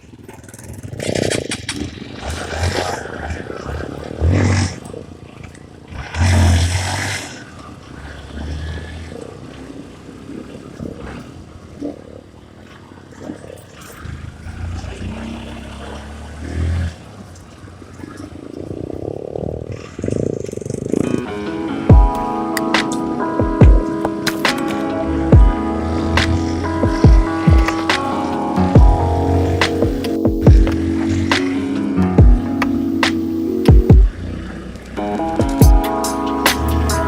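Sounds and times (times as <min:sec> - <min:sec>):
dirt bike engine running: 0:20.7 - 0:37.0.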